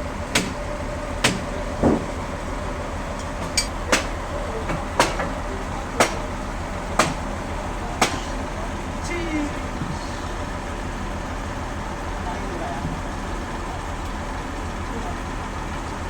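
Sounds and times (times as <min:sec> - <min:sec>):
sawmill machinery humming: 0:00.0 - 0:16.0
sharp knock: 0:03.4 - 0:05.3, 0:07.0 - 0:07.2, 0:08.0 - 0:08.3.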